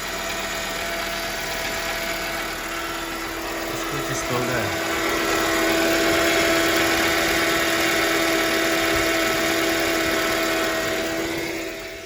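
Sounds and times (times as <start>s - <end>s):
car engine idling: 0.0s - 12.0s
high squeak from belt drive: 0.0s - 12.0s.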